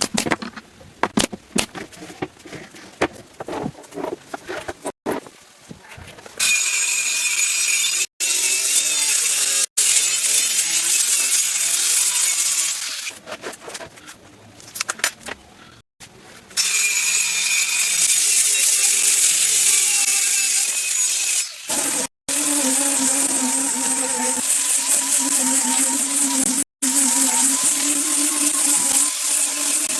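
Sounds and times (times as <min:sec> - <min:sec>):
clicks and knocks: 0:00.0 - 0:02.4.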